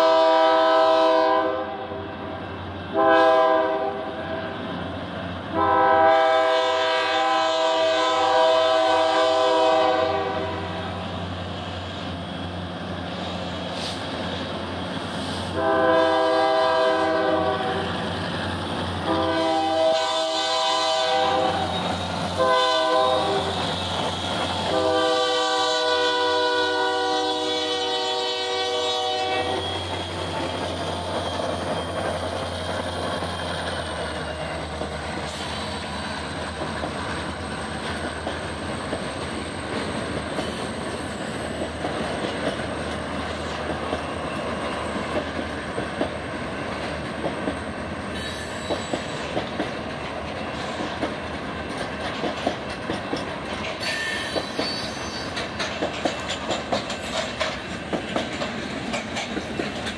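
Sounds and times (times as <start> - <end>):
locomotive air horn blasts: 0.0 - 2.0, 2.9 - 4.1, 5.5 - 10.9, 15.5 - 17.9, 19.0 - 21.8, 22.4 - 23.6, 24.6 - 29.9
locomotives rumbling past: 2.0 - 59.9.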